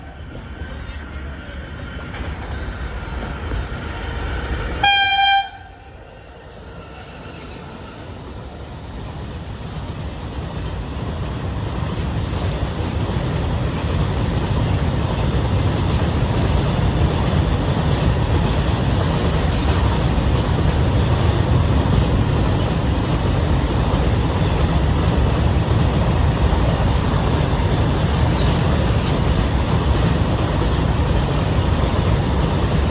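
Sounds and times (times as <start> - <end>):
freight train rumbling past: 0.0 - 32.9
locomotive horn blast: 4.8 - 5.9.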